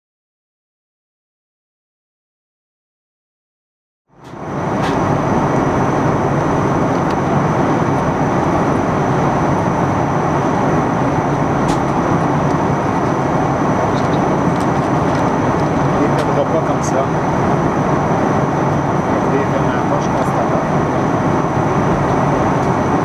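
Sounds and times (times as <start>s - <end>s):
airliner engines and airflow rush: 4.1s - 23.0s.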